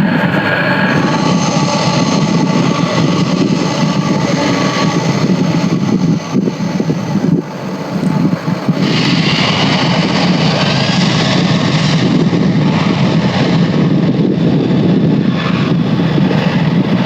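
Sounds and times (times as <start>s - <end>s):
jet engines droning: 0.0s - 17.0s.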